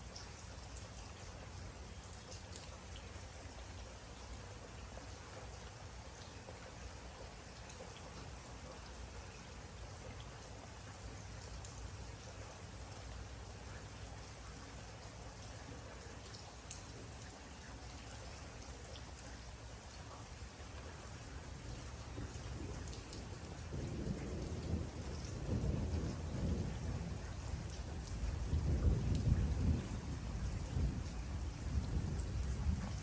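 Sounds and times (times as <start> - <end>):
raindrops tapping: 0.1 - 3.9, 4.8 - 33.0
rain hissing: 8.2 - 33.0.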